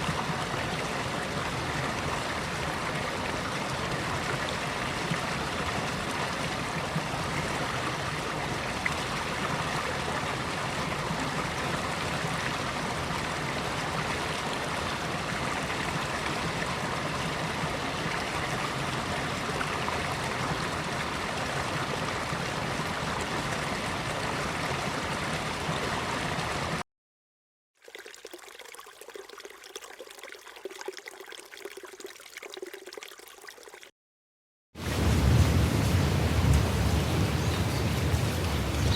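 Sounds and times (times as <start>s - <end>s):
stream flowing: 0.0s - 26.8s, 27.8s - 33.9s, 34.8s - 38.9s
quiet trickle of water: 27.8s - 33.9s.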